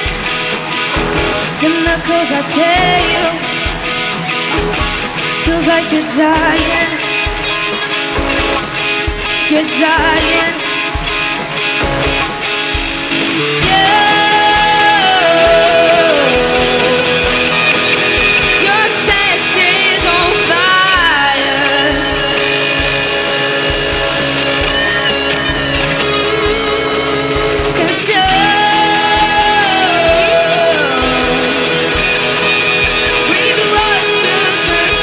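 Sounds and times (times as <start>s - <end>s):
rock band playing: 0.0s - 35.0s
singer holding sliding notes: 13.2s - 35.0s.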